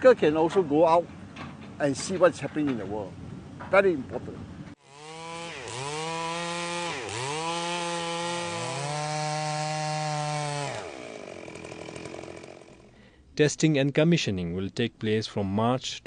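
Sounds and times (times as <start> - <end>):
small engine revving high: 4.8 - 12.7.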